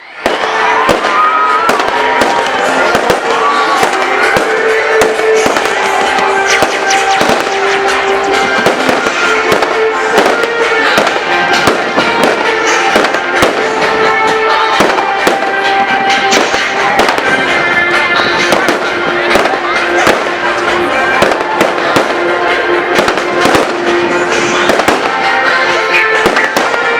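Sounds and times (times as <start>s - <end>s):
fireworks crackling and banging: 0.0s - 26.9s
music with long held notes: 0.2s - 26.9s.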